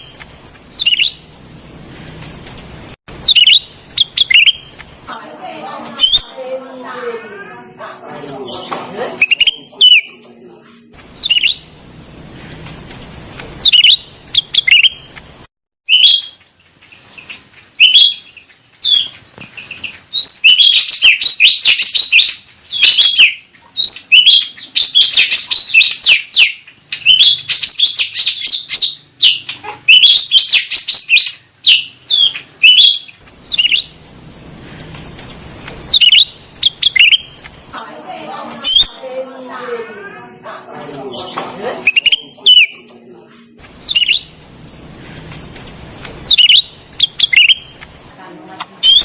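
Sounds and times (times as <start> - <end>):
bird chirping loudly: 0.8 - 1.2, 3.2 - 4.7, 6.0 - 6.4, 8.4 - 10.2, 11.2 - 11.7, 13.6 - 15.1, 17.0 - 34.0, 35.9 - 37.4, 38.6 - 39.0, 41.2 - 42.8, 43.8 - 44.4, 46.3 - 47.8.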